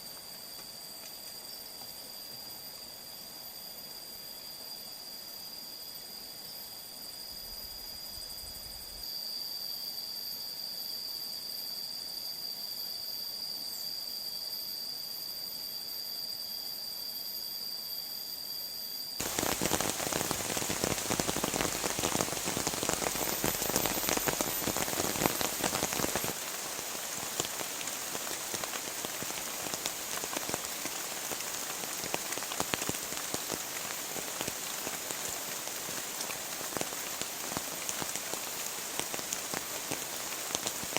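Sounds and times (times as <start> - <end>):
faint high-pitched whine: 0.0 - 40.9
heavy rain falling: 19.2 - 40.9.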